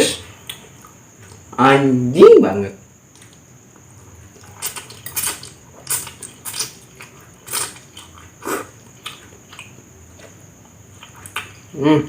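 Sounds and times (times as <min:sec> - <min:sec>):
chewing smacks: 0:03.1 - 0:11.7.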